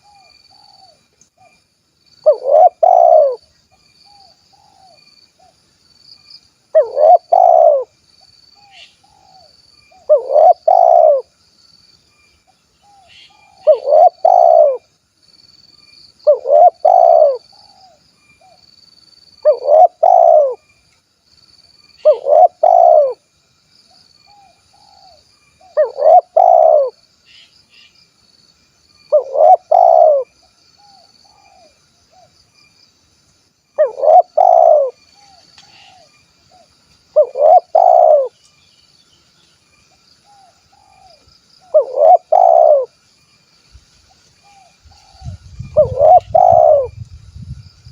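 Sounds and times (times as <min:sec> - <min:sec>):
dove cooing: 0:02.2 - 0:03.4, 0:06.7 - 0:07.9, 0:08.7 - 0:11.3, 0:12.9 - 0:14.9, 0:16.2 - 0:18.6, 0:19.4 - 0:20.6, 0:22.0 - 0:23.2, 0:24.4 - 0:27.0, 0:29.1 - 0:32.3, 0:33.8 - 0:38.4, 0:40.3 - 0:43.0, 0:44.5 - 0:47.0.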